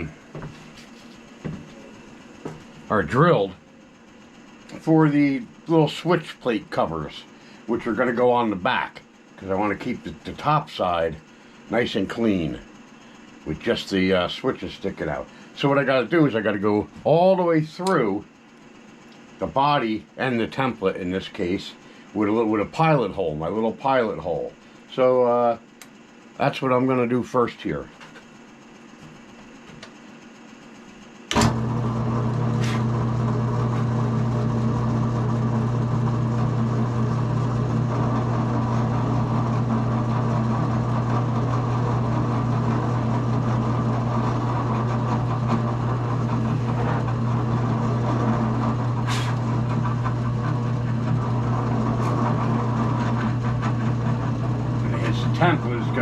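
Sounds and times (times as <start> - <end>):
drill press motor humming: 0.0 - 56.0
drill bit boring through wood: 31.3 - 56.0.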